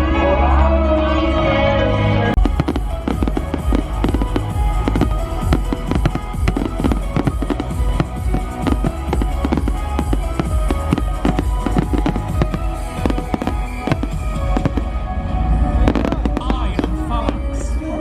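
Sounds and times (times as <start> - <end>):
loud soundtrack music: 0.0 - 18.0
fireworks bangs and crackles: 2.4 - 17.8.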